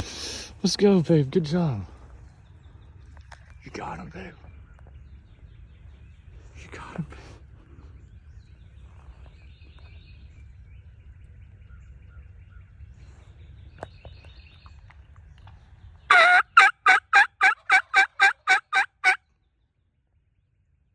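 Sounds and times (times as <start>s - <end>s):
faint songbird chirps: 0.0s - 16.6s, 18.7s - 20.9s
wind rumble: 0.0s - 16.8s
turkey yelps: 16.1s - 19.2s.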